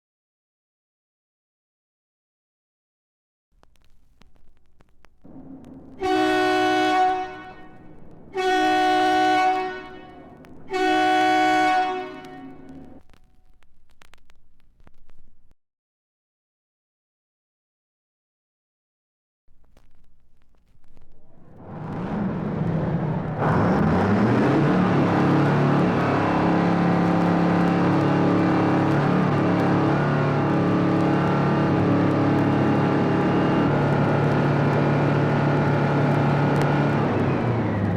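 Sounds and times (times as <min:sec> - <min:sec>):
engine running: 0:05.3 - 0:13.0, 0:21.3 - 0:37.9
horn blasts: 0:05.9 - 0:13.0.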